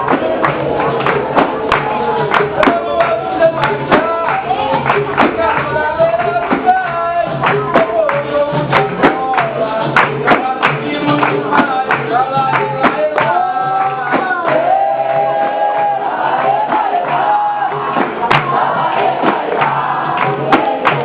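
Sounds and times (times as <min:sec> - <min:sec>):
percussion strikes: 0:00.0 - 0:21.0
sung chant: 0:00.0 - 0:21.0.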